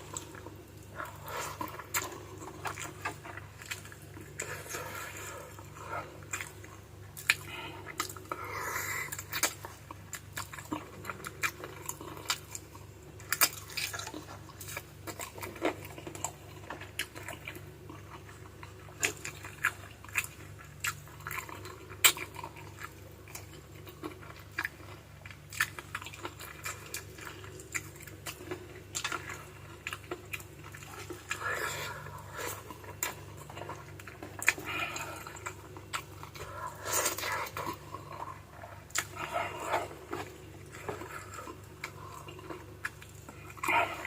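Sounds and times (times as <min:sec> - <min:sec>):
wet chewing and smacking: 0:00.0 - 0:44.0.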